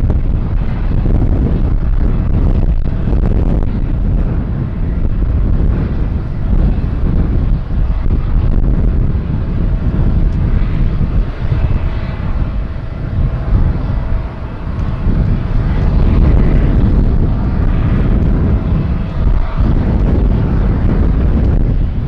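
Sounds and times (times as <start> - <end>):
faint steady whine: 0.0 - 22.0
jet engines rumbling: 0.0 - 22.0.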